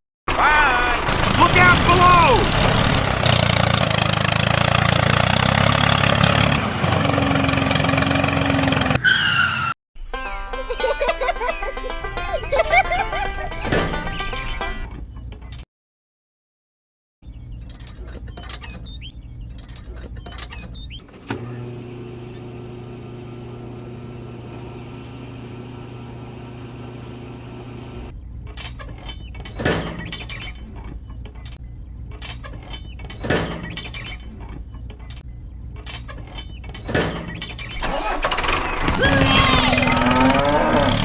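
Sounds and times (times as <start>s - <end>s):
handling clicks and knocks: 17.6s - 21.3s, 28.4s - 37.8s.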